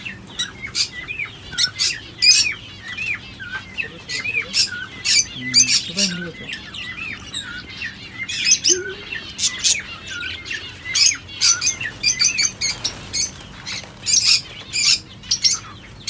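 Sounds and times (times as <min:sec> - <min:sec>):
lovebirds chirping and squawking: 0:00.0 - 0:16.0
whistled bird notes: 0:01.5 - 0:13.3.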